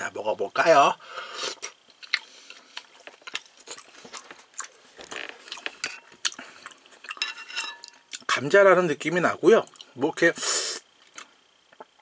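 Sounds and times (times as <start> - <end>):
person chewing with wet clicks: 1.9 - 8.3, 9.6 - 10.0.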